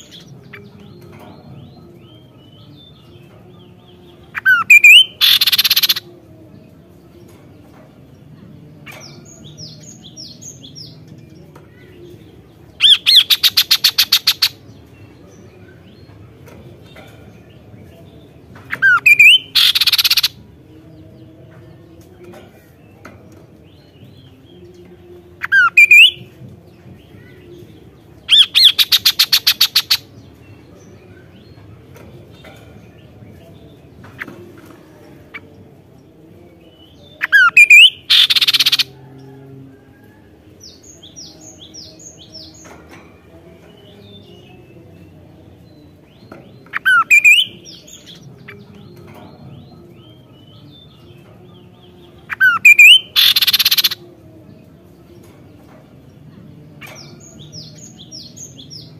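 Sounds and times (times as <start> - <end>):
bird whistling phrases: 18.8 - 20.3, 52.3 - 54.0.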